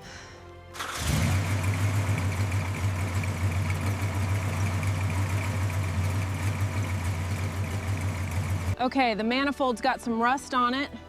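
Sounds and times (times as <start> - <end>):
engine idling: 0.8 - 8.8.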